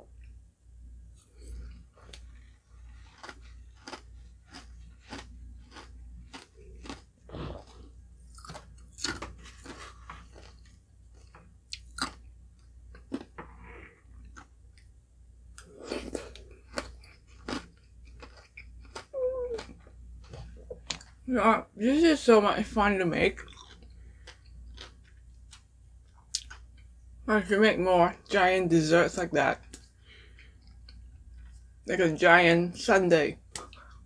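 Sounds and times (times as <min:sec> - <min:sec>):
crunchy chewing: 0:01.1 - 0:13.4, 0:15.6 - 0:21.2, 0:23.4 - 0:26.9.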